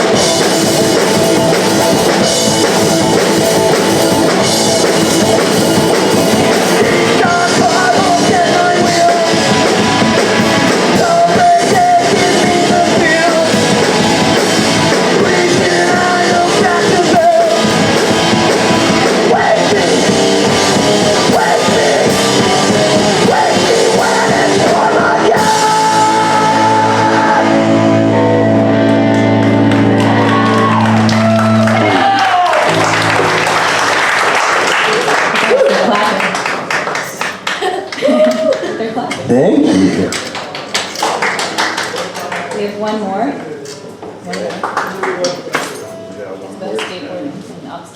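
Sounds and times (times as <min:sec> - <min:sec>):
punk rock band playing: 0:00.0 - 0:36.0
electric guitars: 0:00.0 - 0:41.0
drums: 0:00.0 - 0:42.2
shouted vocals: 0:21.0 - 0:28.0, 0:29.9 - 0:33.0.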